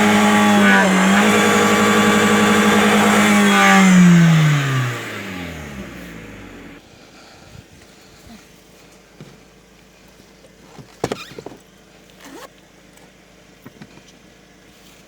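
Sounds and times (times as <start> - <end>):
car engine revving high: 0.0 - 6.8.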